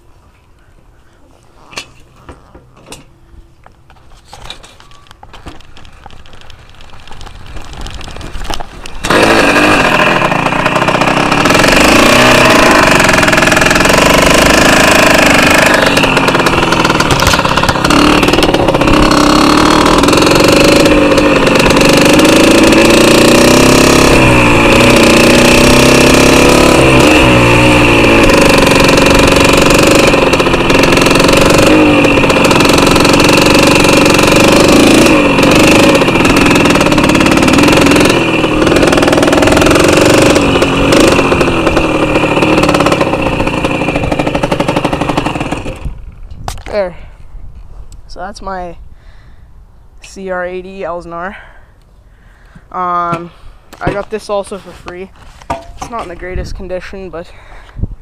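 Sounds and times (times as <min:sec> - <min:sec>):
two-stroke engine revving: 0:07.6 - 0:46.1.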